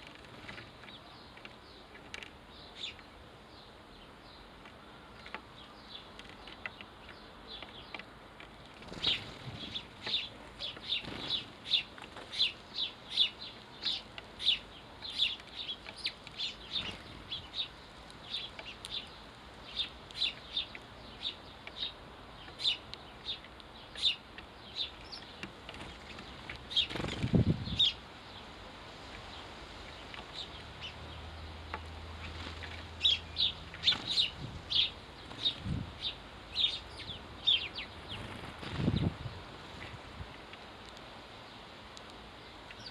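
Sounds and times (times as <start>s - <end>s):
sparrows chirping: 0.0s - 42.9s
wings flapping: 25.8s - 27.5s, 38.1s - 39.2s.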